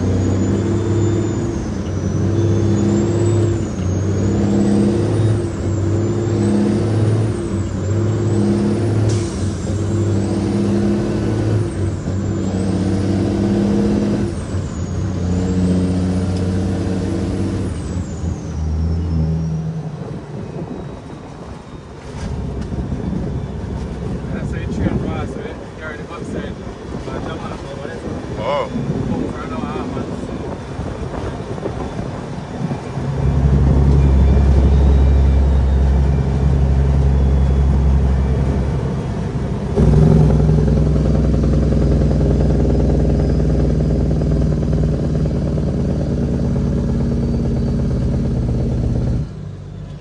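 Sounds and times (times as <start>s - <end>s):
diesel truck engine under load: 0.0s - 50.0s
faint high whistle: 33.2s - 38.8s.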